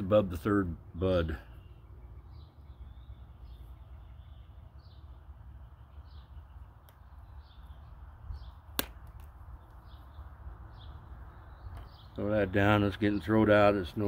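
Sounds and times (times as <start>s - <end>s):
bird chirping faintly: 0.4s - 8.7s.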